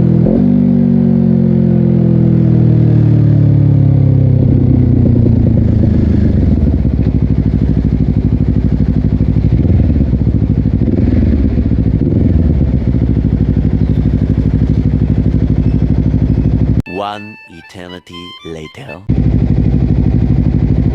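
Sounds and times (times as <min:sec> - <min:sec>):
motorcycle engine idling: 0:04.4 - 0:16.8, 0:19.1 - 0:20.9.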